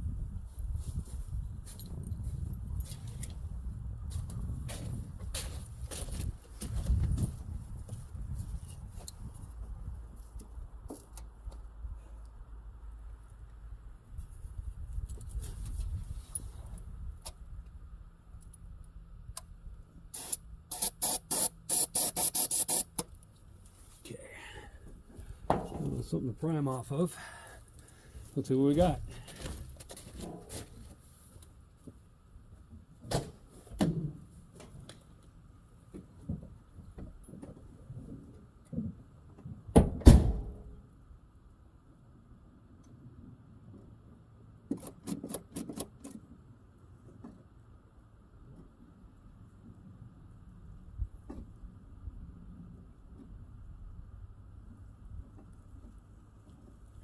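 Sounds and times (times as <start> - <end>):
aerosol can spraying bursts: 20.2 - 22.9.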